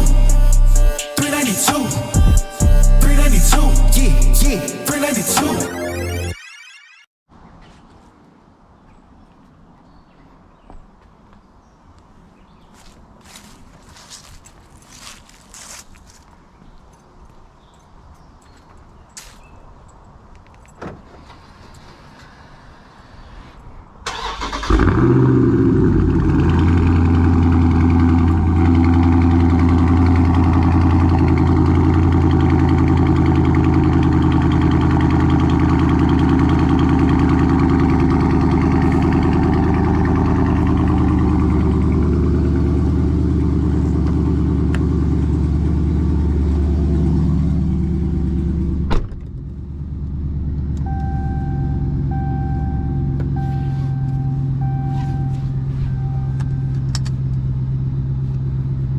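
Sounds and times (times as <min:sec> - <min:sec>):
car engine revving and idling: 0:00.0 - 0:06.1, 0:24.1 - 0:58.9
electronic chime beeping: 0:03.1 - 0:07.1, 0:50.9 - 0:56.8.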